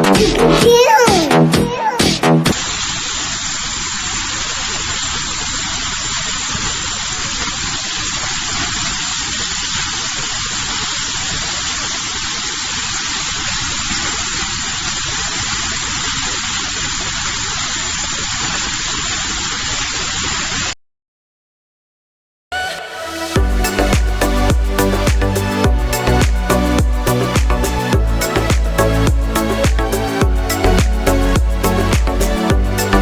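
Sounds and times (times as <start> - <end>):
plasma cutter hissing: 2.5 - 20.6.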